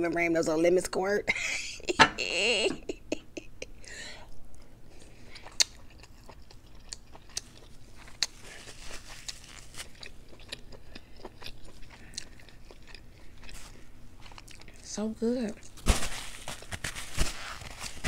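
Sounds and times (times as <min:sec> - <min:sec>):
person chewing: 0:04.3 - 0:14.9, 0:15.6 - 0:18.0.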